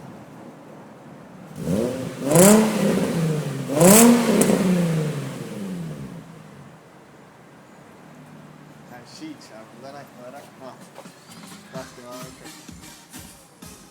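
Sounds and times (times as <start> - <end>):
car engine revving from idle: 1.4 - 7.0.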